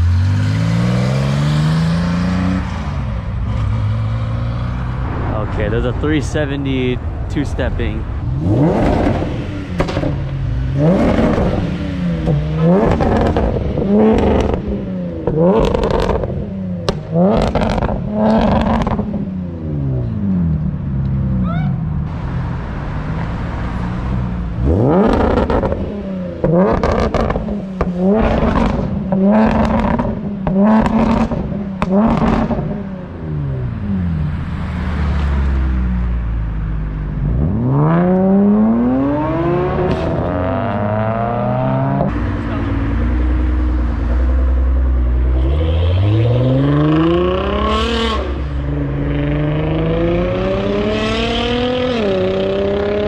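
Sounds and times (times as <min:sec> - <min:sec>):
car engine revving: 0:00.0 - 0:53.0
sharp exhaust pops: 0:09.8 - 0:10.2.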